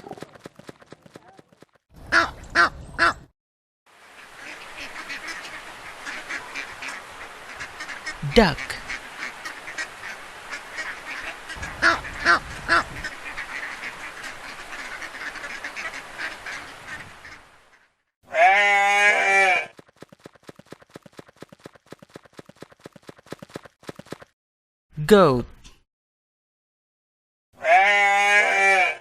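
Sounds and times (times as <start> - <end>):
ducks quacking: 2.0 - 3.3, 4.0 - 18.0
fast clicks: 19.7 - 24.3.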